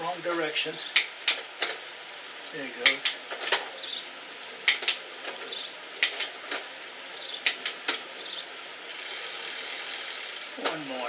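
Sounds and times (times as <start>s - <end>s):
bicycle chain and gears clicking: 4.4s - 11.0s.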